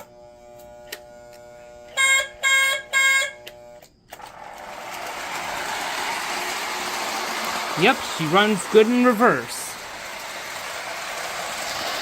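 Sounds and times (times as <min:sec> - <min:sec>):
electrical hum: 0:00.0 - 0:11.7
toy train motor whirring: 0:00.0 - 0:12.0
toy train horn blasts: 0:01.9 - 0:03.5.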